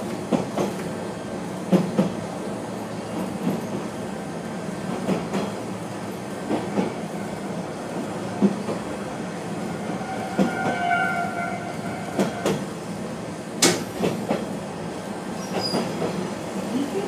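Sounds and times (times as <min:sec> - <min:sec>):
railcar running noise: 0:00.0 - 0:17.0.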